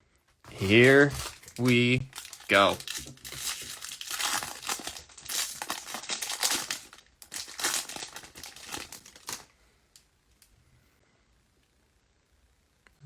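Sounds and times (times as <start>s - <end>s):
plastic wrapping tearing and crinkling: 0.5s - 9.5s.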